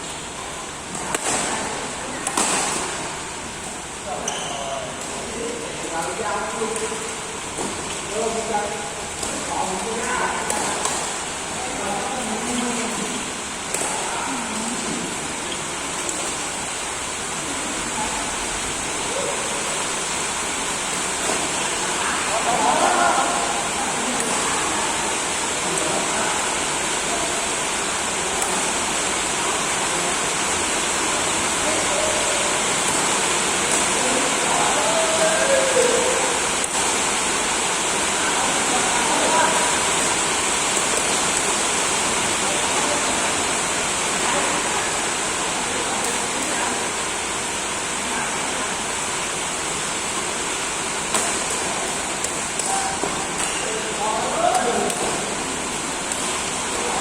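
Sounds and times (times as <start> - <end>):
rackets striking shuttlecock: 52.2 - 53.7.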